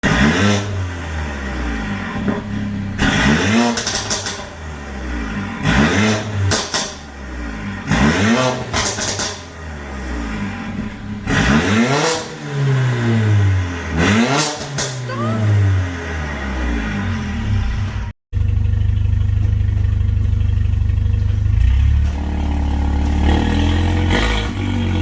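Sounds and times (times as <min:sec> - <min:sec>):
car engine revving: 0:00.0 - 0:18.1
exhaust pops and crackles: 0:03.7 - 0:04.6.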